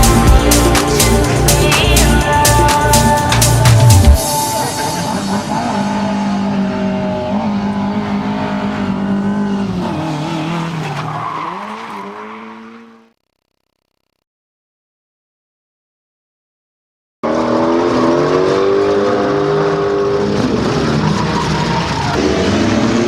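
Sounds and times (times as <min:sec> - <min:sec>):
backing music: 0:00.0 - 0:06.6
car engine at high revs: 0:04.6 - 0:13.2, 0:17.2 - 0:23.0.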